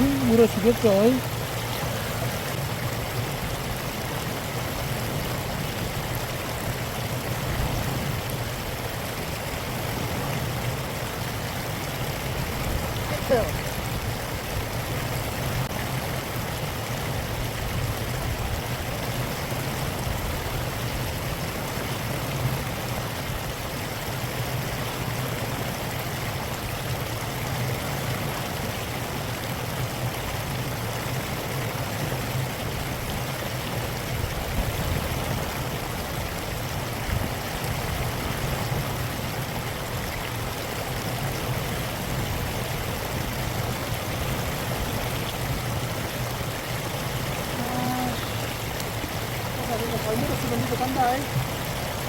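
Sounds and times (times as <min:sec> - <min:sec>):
stream flowing: 0:00.0 - 0:52.0.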